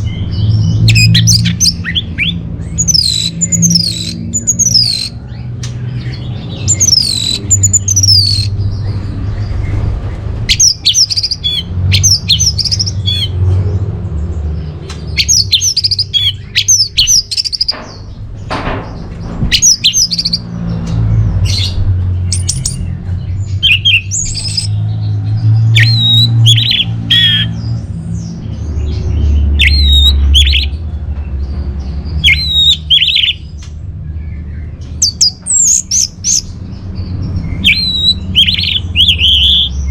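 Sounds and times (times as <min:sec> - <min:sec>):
thrush singing: 0:00.0 - 0:30.9, 0:34.4 - 0:39.9.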